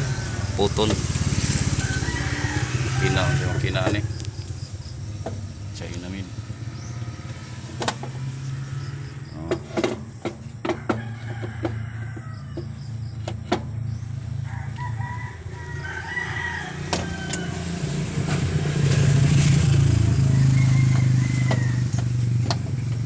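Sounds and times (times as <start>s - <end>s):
rooster crowing: 0.0s - 4.4s, 10.6s - 13.2s, 13.9s - 23.0s
engine humming: 0.0s - 23.0s
sharp clicks and knocks: 7.7s - 8.2s, 9.4s - 13.9s, 20.9s - 23.0s.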